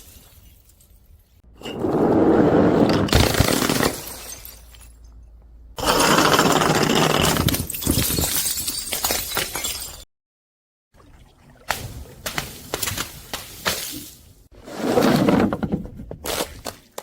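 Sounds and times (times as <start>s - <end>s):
glass breaking and crunching: 3.1s - 5.2s, 7.4s - 10.0s.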